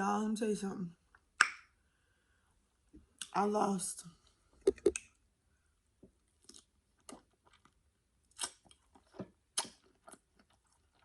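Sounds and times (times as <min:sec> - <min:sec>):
person chewing with mouth open: 0:06.4 - 0:11.0.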